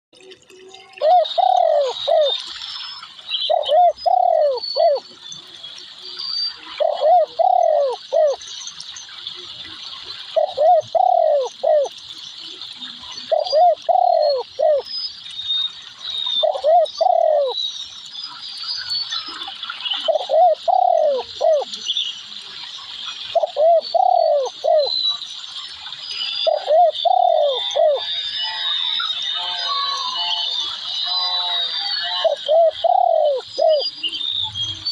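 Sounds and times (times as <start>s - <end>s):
dove cooing: 1.0s - 2.3s, 3.5s - 5.0s, 6.8s - 8.4s, 10.4s - 12.0s, 13.3s - 14.8s, 16.4s - 17.6s, 20.1s - 21.7s, 23.4s - 24.9s, 26.5s - 28.0s, 32.2s - 33.8s.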